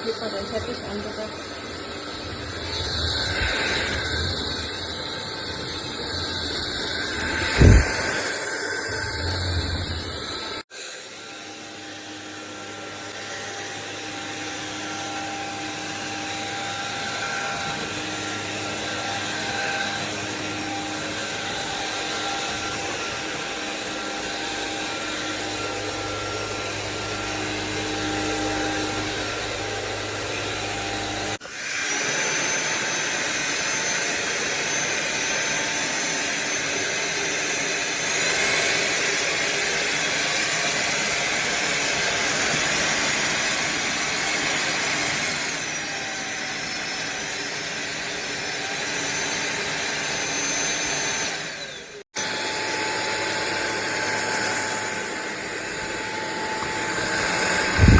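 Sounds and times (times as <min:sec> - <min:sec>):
stick vacuum whine: 0:00.0 - 0:57.9.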